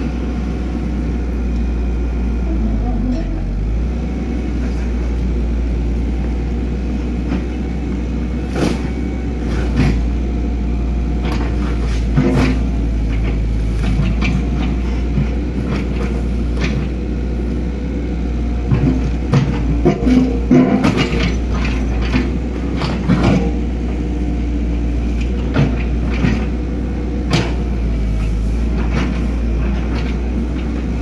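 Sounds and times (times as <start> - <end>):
excavator diesel engine running: 0.0 - 31.0
sharp knocks and clanks: 18.7 - 23.6.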